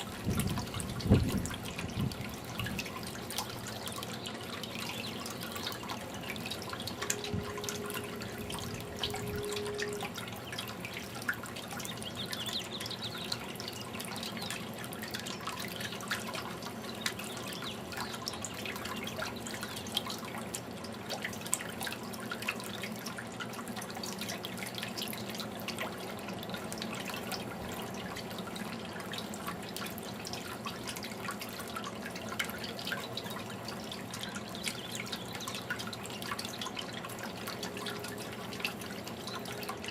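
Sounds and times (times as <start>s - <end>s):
fountain water trickling and dripping: 0.0s - 39.9s
steady tone: 7.0s - 10.2s.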